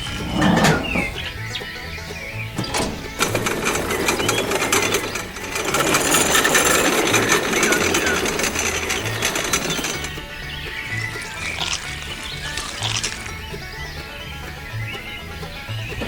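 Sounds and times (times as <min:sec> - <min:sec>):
dense rapid clattering: 0:00.0 - 0:14.6
background music with bass line: 0:00.0 - 0:16.0.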